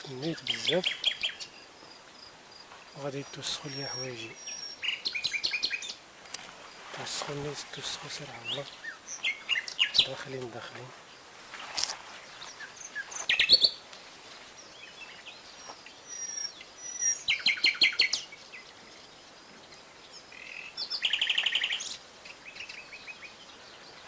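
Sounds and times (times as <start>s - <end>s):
songbirds chirping: 0.0s - 24.0s
brush crackling: 6.1s - 14.6s
bird trill: 12.6s - 13.8s, 16.0s - 18.3s.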